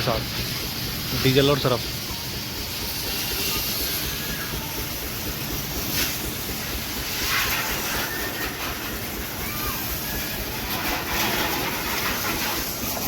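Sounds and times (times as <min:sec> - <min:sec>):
pressure washer spraying water: 0:00.0 - 0:13.0.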